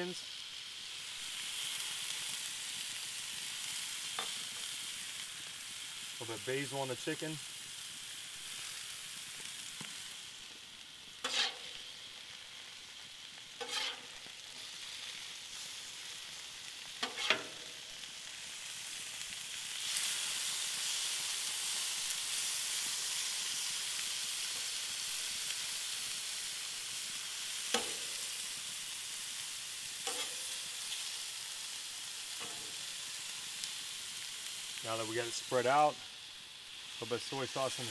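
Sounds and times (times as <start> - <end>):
chicken and onions sizzling: 0.0 - 37.9
metal spatula scraping griddle: 11.2 - 11.8, 13.6 - 14.3, 17.0 - 17.8, 27.7 - 28.2, 30.0 - 30.7, 32.4 - 32.8.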